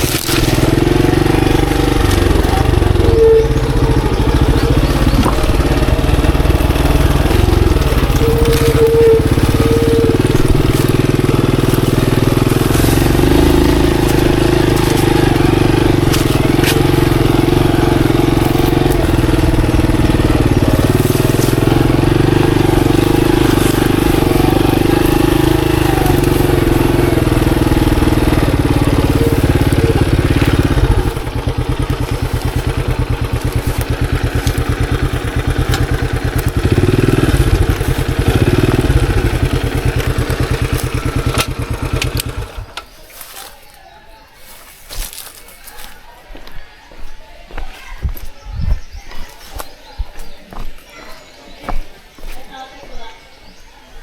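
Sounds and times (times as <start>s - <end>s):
motorcycle engine running: 0.0s - 52.3s.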